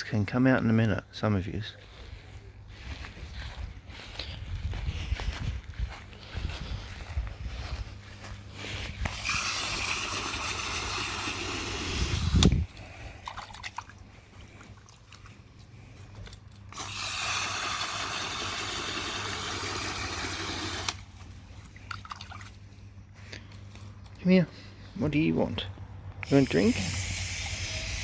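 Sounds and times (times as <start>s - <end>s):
water pouring: 9.1s - 12.5s, 16.7s - 21.0s.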